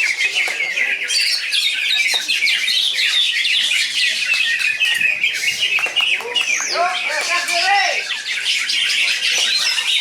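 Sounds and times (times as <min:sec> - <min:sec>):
birds chirping and whistling: 0:00.0 - 0:10.0.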